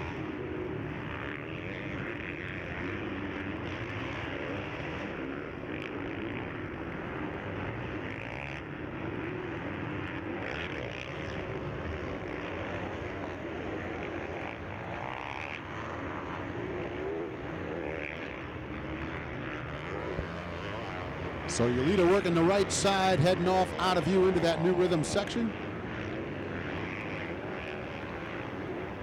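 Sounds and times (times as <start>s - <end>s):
motocross bike engines revving: 17.3s - 29.0s.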